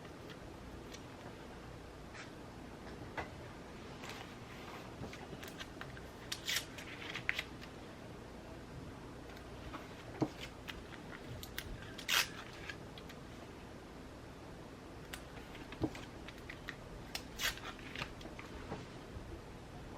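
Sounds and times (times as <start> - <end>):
paper handling: 4.0 - 7.8
scissors snipping paper: 10.3 - 13.1.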